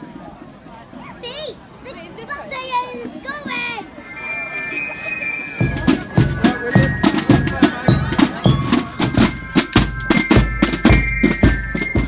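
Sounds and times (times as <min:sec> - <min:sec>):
drums beating fast rhythm: 0:04.4 - 0:12.0
bass drum strokes: 0:05.6 - 0:12.0.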